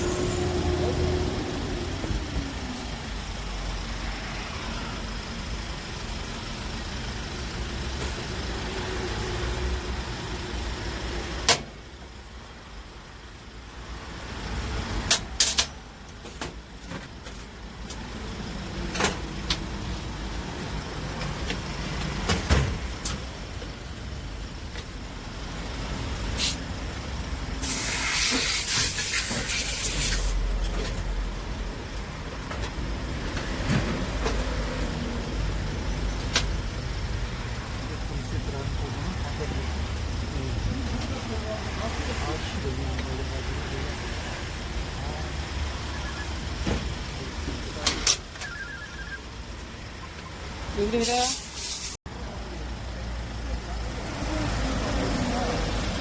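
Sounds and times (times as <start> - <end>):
loud hiss: 27.6 - 30.4.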